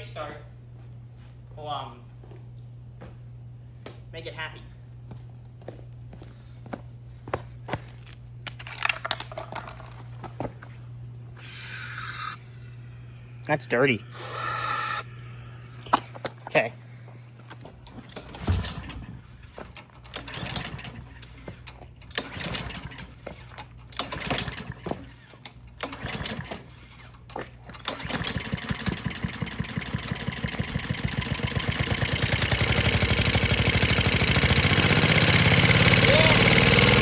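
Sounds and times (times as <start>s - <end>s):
mower engine pull-starting: 8.5s - 10.7s, 11.4s - 37.0s
mower engine running: 8.7s - 18.9s, 27.7s - 37.0s.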